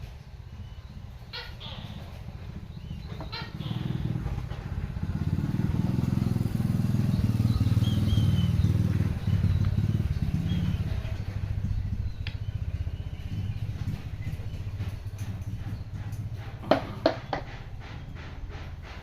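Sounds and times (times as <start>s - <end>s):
small engine rumbling: 0.0s - 19.0s.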